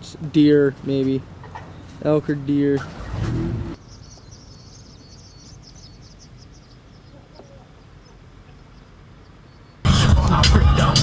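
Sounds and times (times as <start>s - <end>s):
low background rumble: 2.8s - 11.0s
high-pitched bird chirping: 3.8s - 9.9s.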